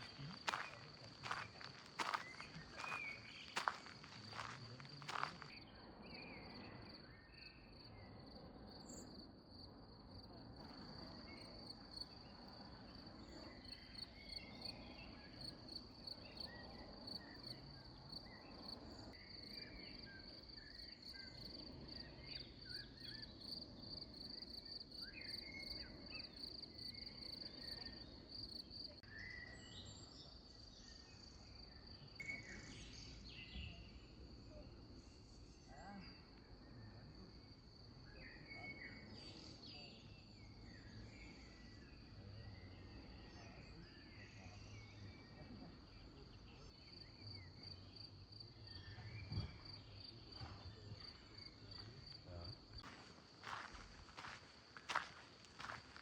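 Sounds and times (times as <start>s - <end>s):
cricket trilling: 0.0s - 5.6s, 51.0s - 56.0s.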